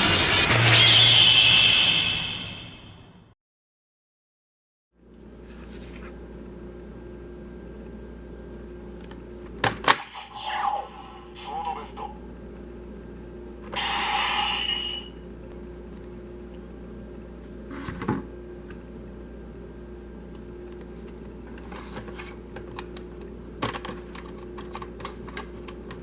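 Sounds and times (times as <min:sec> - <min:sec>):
low hum: 0:00.0 - 0:03.4.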